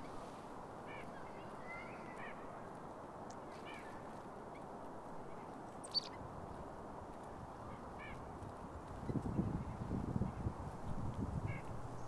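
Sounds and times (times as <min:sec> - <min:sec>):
wind: 0:00.0 - 0:12.0
nasal bird calls: 0:05.8 - 0:06.2.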